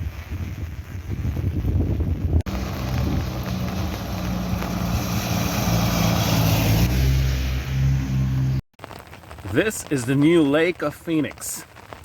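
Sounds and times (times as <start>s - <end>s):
steady rushing noise: 1.5s - 7.7s.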